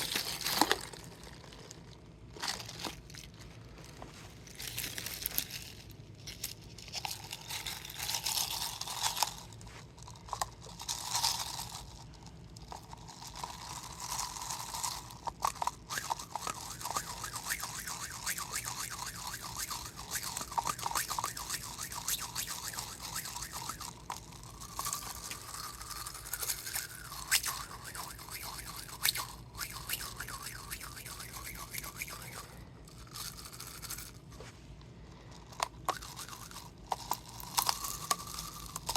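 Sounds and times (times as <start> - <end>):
plastic bottle crinkling: 0.0 - 11.5.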